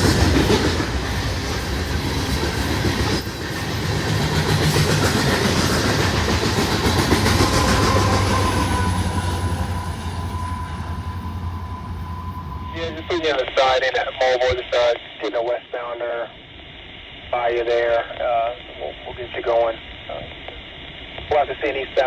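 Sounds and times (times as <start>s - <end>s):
freight train rumbling past: 0.0s - 13.6s.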